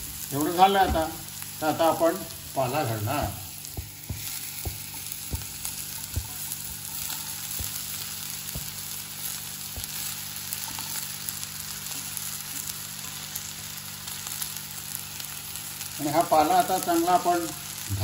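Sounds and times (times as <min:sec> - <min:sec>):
leaves sizzling in hot oil: 0:00.0 - 0:18.0.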